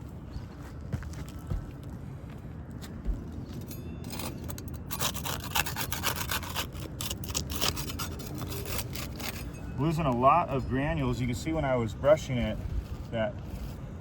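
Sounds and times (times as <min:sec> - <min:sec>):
putty knife scraping shingles: 0:04.1 - 0:09.5.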